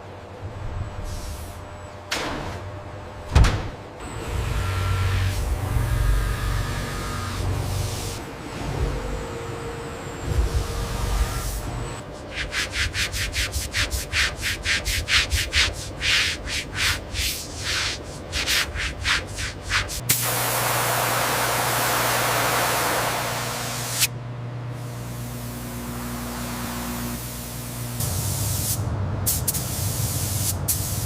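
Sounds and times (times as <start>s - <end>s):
rubbing strokes on a surface: 12.0s - 20.0s
spray hiss: 20.0s - 24.1s, 27.3s - 31.0s.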